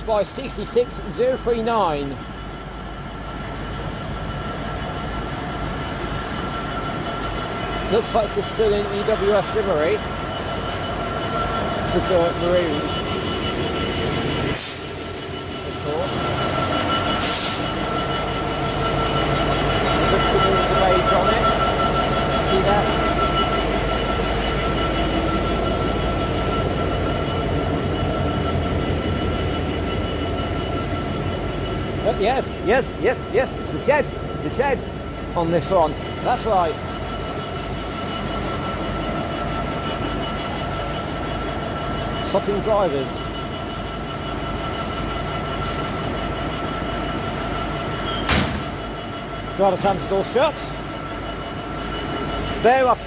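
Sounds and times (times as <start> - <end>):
diesel locomotive idling: 0.0 - 53.0
thin steady whine: 0.2 - 48.1, 48.8 - 53.0
train cab door slamming: 48.1 - 48.9.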